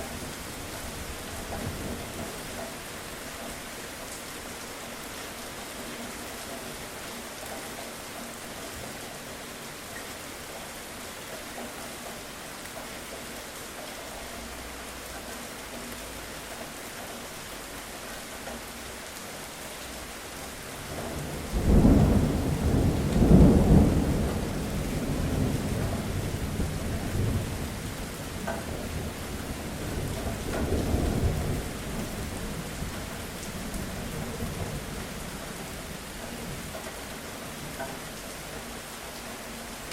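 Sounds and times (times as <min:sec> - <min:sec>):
steady rain: 0:00.0 - 0:39.9
thunder rolling: 0:20.9 - 0:33.0.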